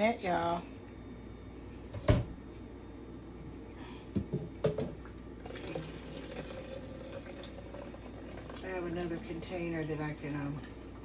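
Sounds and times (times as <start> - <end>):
water running: 5.4 - 11.0.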